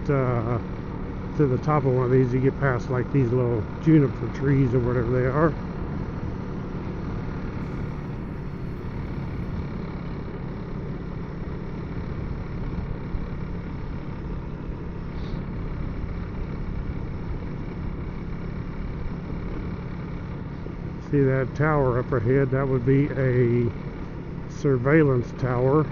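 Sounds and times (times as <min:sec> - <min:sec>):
motorcycle engine running: 0:00.0 - 0:25.9
wind noise: 0:07.6 - 0:10.0.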